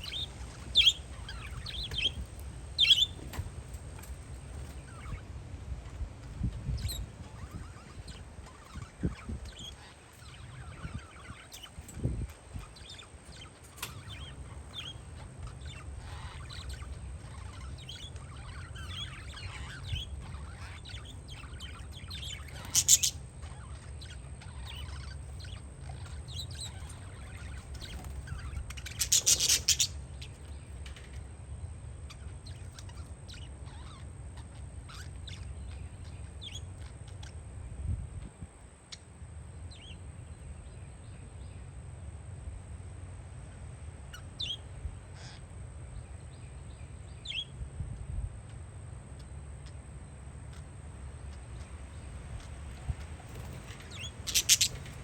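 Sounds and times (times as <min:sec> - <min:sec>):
wind rumble on microphone: 0:00.0 - 0:13.4, 0:37.5 - 0:38.7, 0:47.2 - 0:48.5
parakeets chirping: 0:00.0 - 0:37.4, 0:44.0 - 0:45.5, 0:47.0 - 0:47.5, 0:49.1 - 0:55.0
harsh parakeet bursts: 0:54.2 - 0:55.0.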